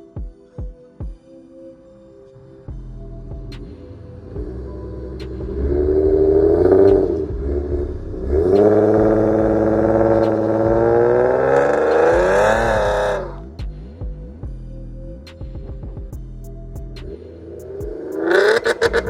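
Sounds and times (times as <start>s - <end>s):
car engine revving: 3.2s - 13.8s, 16.8s - 19.0s.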